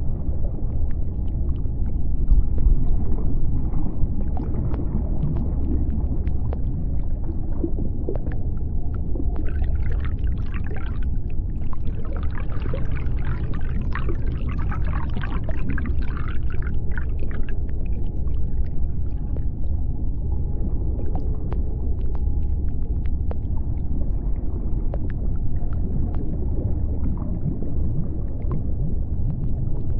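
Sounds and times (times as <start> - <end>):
deep underwater rumble: 0.0 - 29.9
sharp underwater clicks: 21.0 - 23.9.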